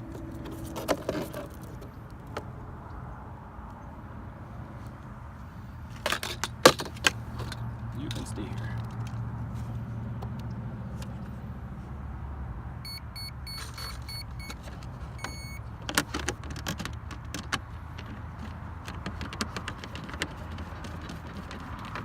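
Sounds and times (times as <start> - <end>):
electronic beeps: 12.8 - 14.6, 15.2 - 15.6
clicks and knocks of handling: 13.6 - 22.0.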